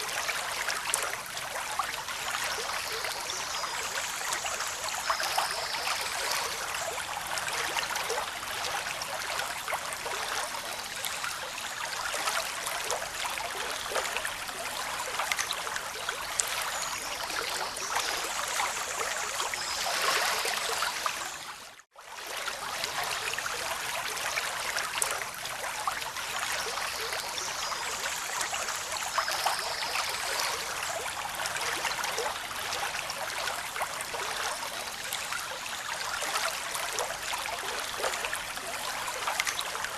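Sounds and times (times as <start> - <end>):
small splashes and trickles: 0.0 - 39.9.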